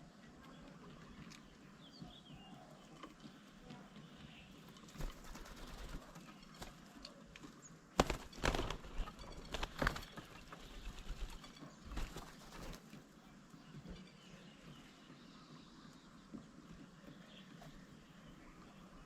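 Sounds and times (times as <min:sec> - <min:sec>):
birds tapping and knocking: 0:00.6 - 0:13.0.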